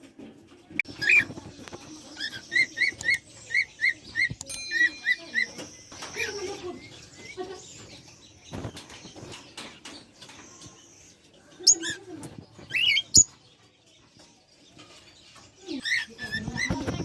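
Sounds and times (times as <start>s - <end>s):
faint rustling and clicks: 0.0s - 4.6s, 5.2s - 15.6s
parrots shrill gliding calls: 2.1s - 7.9s.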